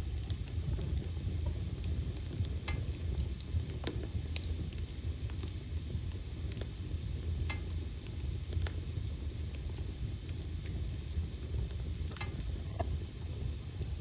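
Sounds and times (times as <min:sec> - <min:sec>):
fire rumbling: 0:00.0 - 0:14.0
wood crackling and popping: 0:00.0 - 0:14.0.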